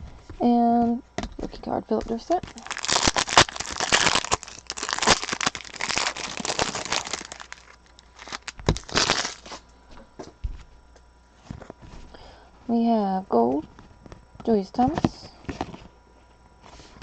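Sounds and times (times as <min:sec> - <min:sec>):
card packaging rustling and crinkling: 0:02.1 - 0:09.7.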